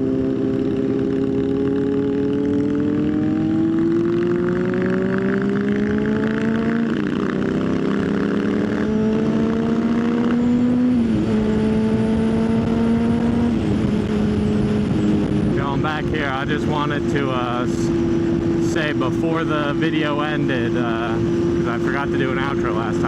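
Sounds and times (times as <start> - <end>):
motorcycle engine: 0.0 - 23.0
wind rush: 10.9 - 23.0.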